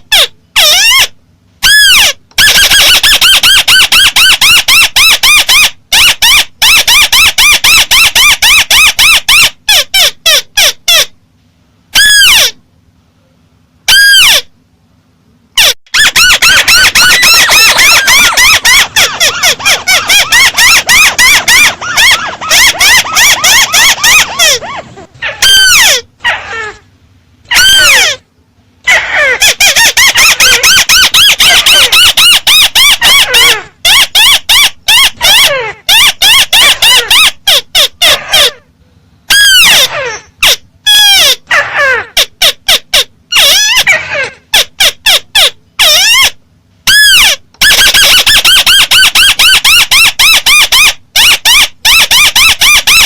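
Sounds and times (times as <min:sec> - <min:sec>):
bird chattering calls: 0:15.6 - 0:25.9.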